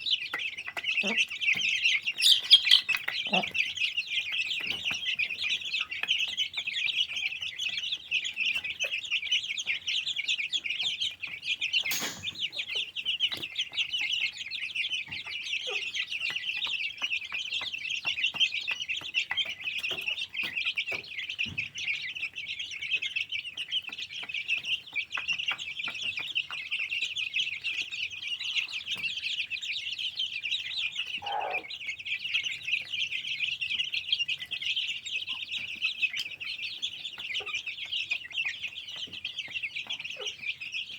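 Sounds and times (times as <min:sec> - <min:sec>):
chicks peeping: 0:00.0 - 0:40.9
low bird call: 0:31.2 - 0:31.7.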